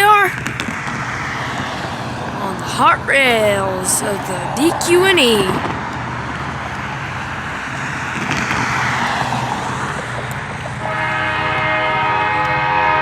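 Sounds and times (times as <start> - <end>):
train horn chord: 10.8 - 13.0.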